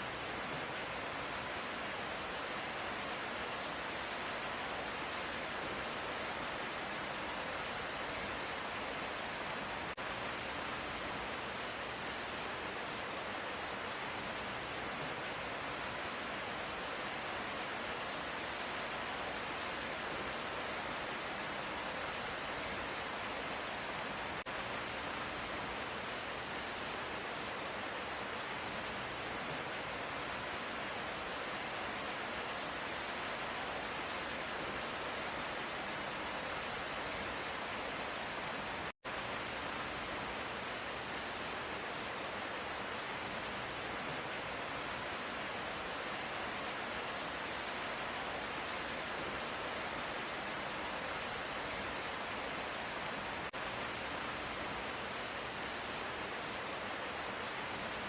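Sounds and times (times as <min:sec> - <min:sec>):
light rain: 0:00.0 - 0:58.0.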